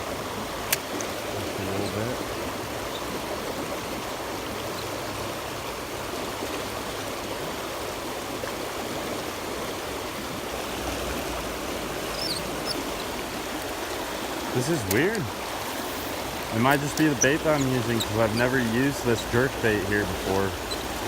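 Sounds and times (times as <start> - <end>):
creek water burbling: 0.0 - 21.0
faint high chirps: 12.1 - 12.8.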